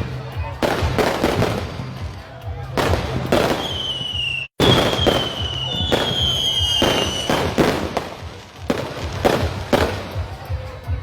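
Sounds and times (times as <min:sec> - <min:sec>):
fireworks bangs: 0:00.6 - 0:10.4
fireworks whistles sliding down: 0:03.6 - 0:07.4.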